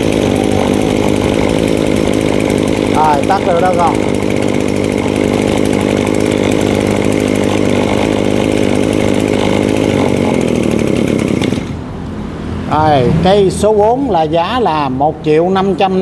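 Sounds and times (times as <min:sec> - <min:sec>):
brush cutter engine running: 0:00.0 - 0:12.0.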